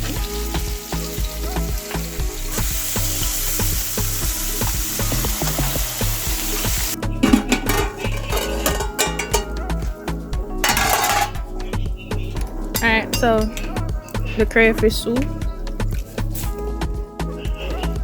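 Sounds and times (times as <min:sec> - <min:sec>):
meat sizzling in a pot: 0:00.0 - 0:09.6, 0:10.6 - 0:11.3
background music with bass line: 0:00.0 - 0:18.0.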